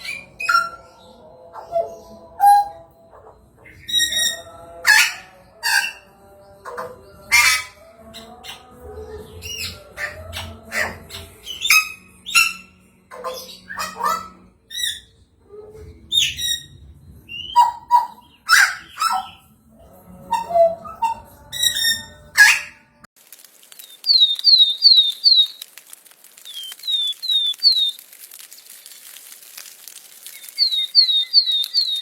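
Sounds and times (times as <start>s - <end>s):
bird squawks chirps and whistles: 24.1s - 25.6s, 26.5s - 28.0s, 30.3s - 32.0s.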